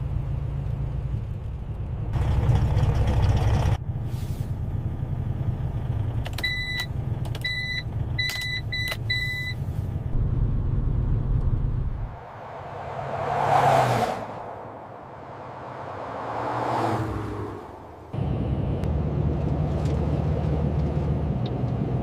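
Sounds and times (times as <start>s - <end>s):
road noise: 0.0s - 22.0s
truck engine rumble: 0.0s - 22.0s.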